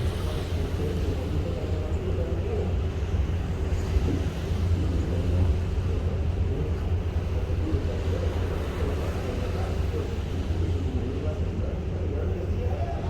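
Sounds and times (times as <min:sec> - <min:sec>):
rushing water noise: 0:00.0 - 0:01.9
ship engine drone: 0:00.0 - 0:13.0.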